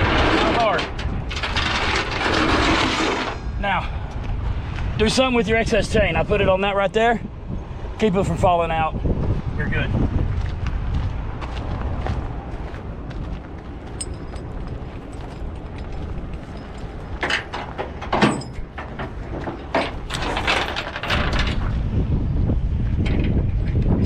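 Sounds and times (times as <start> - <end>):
steel chain clanking and rattling: 0.0 - 3.4, 13.9 - 21.8
steady low rumble: 3.2 - 24.0.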